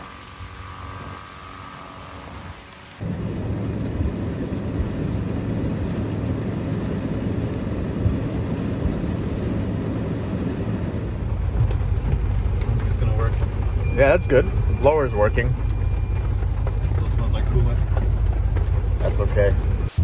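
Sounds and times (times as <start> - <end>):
rain hiss: 0.0 - 17.9
car rumble while driving: 0.0 - 20.0.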